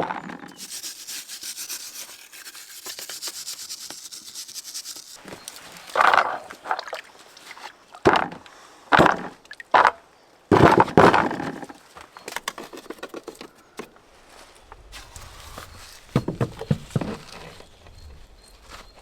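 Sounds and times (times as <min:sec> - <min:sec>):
hissy scraping rub: 0:00.5 - 0:06.0.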